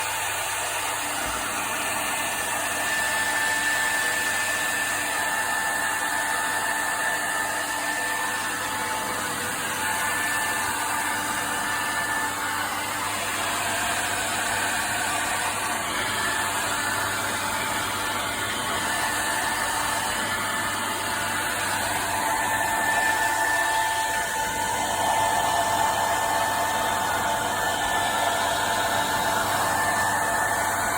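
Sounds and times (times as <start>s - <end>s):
hair dryer blowing air: 0.0s - 30.9s.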